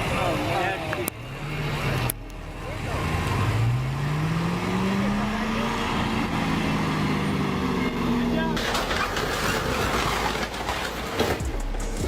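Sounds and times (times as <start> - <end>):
vehicle engine rising in pitch: 1.2 - 8.4.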